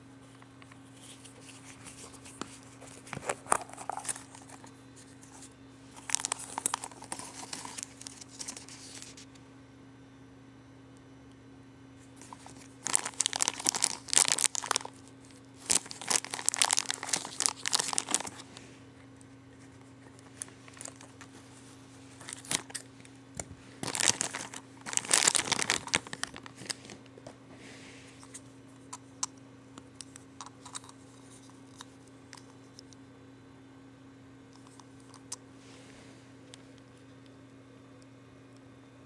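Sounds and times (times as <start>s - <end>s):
faint low hum: 0.0s - 39.0s
packaging crinkling and tearing: 1.0s - 9.3s, 12.2s - 18.6s, 20.0s - 27.1s.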